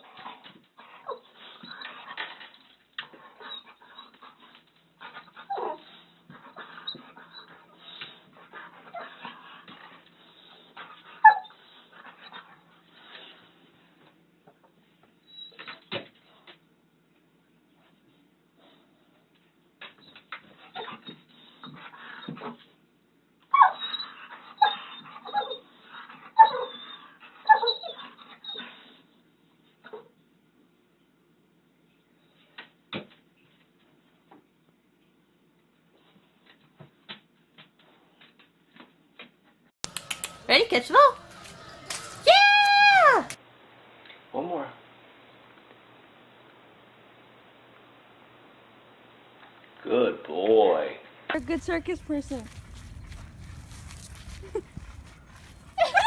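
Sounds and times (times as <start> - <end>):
dog whimpering and whining: 5.1 - 12.6, 23.5 - 29.0, 39.9 - 43.4, 54.3 - 56.0
dog calling: 39.8 - 43.4, 51.4 - 56.0.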